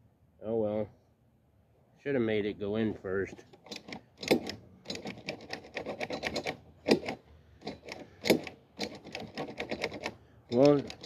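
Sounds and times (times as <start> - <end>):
hand tools clicking on metal: 3.4 - 11.0
sharp metal knocks: 3.6 - 11.0.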